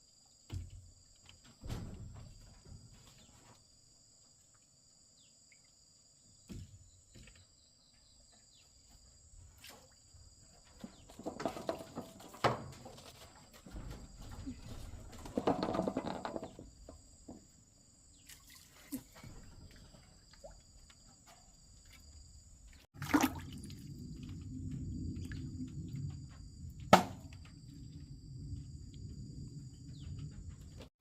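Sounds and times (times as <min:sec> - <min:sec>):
water dripping and trickling: 0:18.2 - 0:22.0, 0:22.6 - 0:26.7
low water noise: 0:22.7 - 0:29.6
water splashing: 0:22.9 - 0:24.1
sharp knocks: 0:26.9 - 0:27.3.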